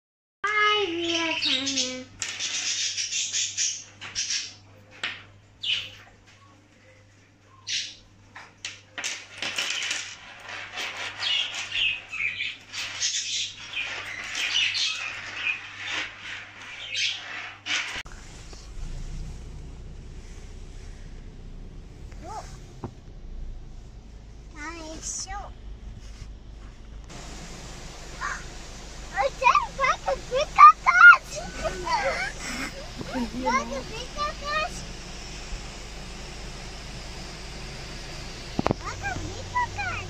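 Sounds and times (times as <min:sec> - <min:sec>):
birds chirping: 0:00.5 - 0:08.2, 0:11.1 - 0:18.0, 0:27.1 - 0:40.0
faint steady hum: 0:18.1 - 0:40.0.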